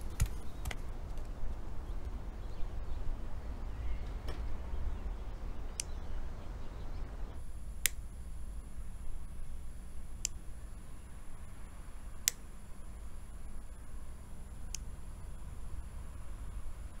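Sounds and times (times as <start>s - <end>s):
sharp clicks: 0.0s - 1.3s, 5.7s - 6.0s, 7.8s - 8.1s, 12.2s - 12.5s
faint high-pitched whine: 0.0s - 17.0s
low hum: 0.0s - 17.0s.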